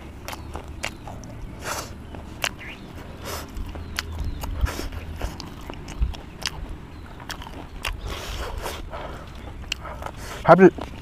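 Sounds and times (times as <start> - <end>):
low steady rumble: 0.0 - 11.0
person chewing food: 0.0 - 11.0.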